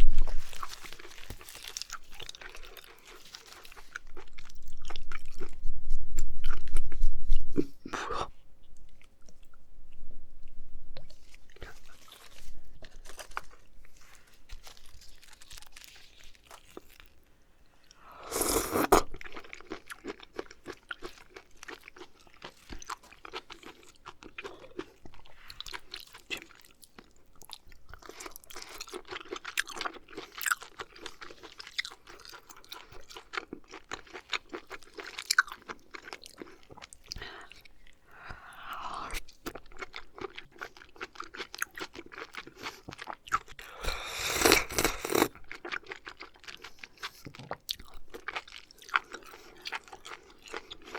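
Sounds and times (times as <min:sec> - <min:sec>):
noisy mouth sound: 0:05.9 - 0:08.4, 0:18.2 - 0:19.1, 0:43.7 - 0:45.4
wet chewing mouth clicks: 0:38.3 - 0:50.9.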